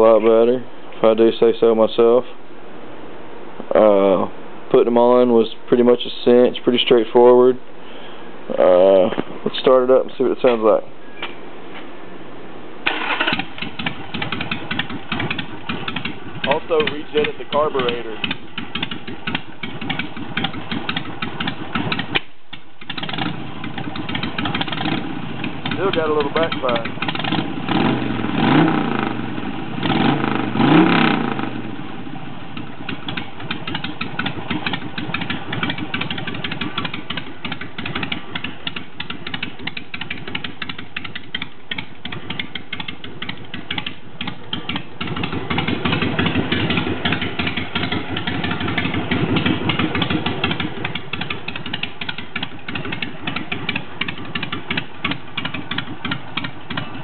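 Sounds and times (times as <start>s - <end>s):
motorcycle throttle blips: 12.8s - 57.0s
motorcycle engine idling: 12.9s - 57.0s.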